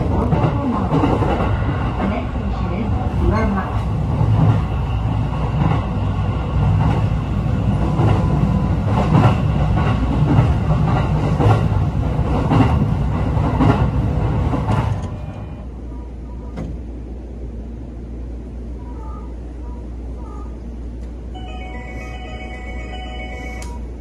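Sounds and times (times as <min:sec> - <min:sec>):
train interior rumble: 0:00.0 - 0:24.0
rail-joint clacks: 0:06.7 - 0:15.6, 0:16.3 - 0:16.9.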